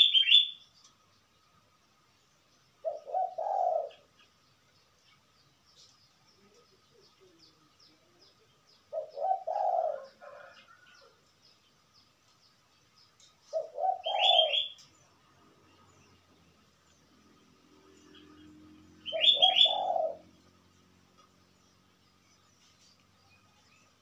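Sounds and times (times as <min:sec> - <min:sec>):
bird cooing: 0:00.0 - 0:00.6, 0:02.8 - 0:04.3, 0:06.4 - 0:11.2, 0:13.4 - 0:15.0, 0:17.8 - 0:21.4
small birds chirping: 0:00.0 - 0:24.0.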